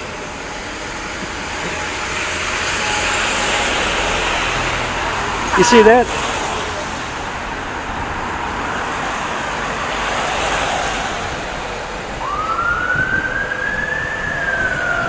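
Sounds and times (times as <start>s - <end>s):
emergency siren wailing: 0.0s - 6.1s, 11.0s - 15.0s
road traffic: 0.0s - 15.0s.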